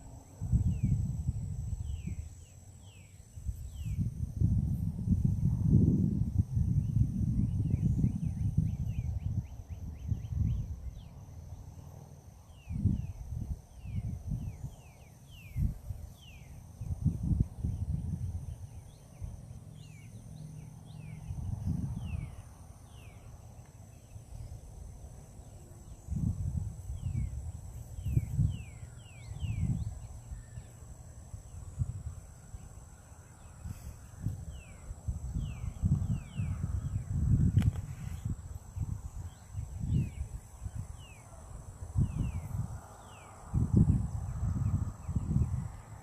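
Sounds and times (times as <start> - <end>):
wind buffeting microphone: 0.0 - 46.0
bird chirping: 17.8 - 24.7, 25.4 - 31.6, 32.5 - 37.3.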